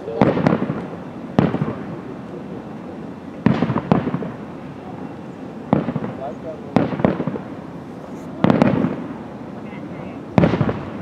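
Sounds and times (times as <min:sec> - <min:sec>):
firework shells booming: 0:00.0 - 0:02.2, 0:03.3 - 0:04.7, 0:05.6 - 0:11.0
firework crackling: 0:00.0 - 0:11.0.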